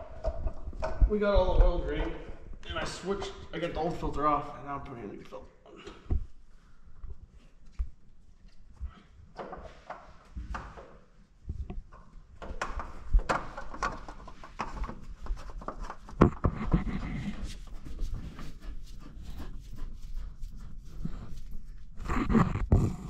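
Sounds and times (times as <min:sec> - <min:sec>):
rubbing and scraping: 0:08.5 - 0:23.0
clicks and knocks from handling: 0:09.3 - 0:16.9.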